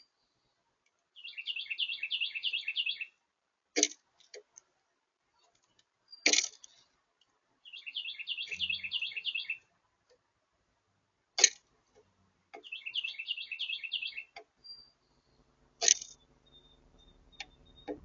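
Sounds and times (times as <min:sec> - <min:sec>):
sharp clicks: 0:15.8 - 0:18.0.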